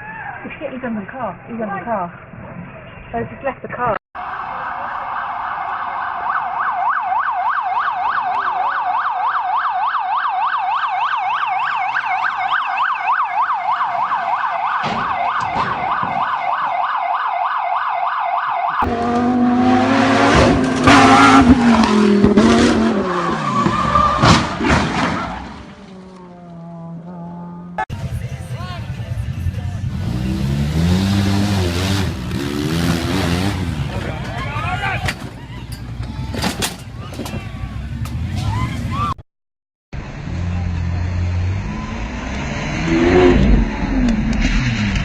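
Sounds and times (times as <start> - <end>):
siren yelping: 4.2 - 18.9
car engine: 18.8 - 36.9, 40.0 - 45.0.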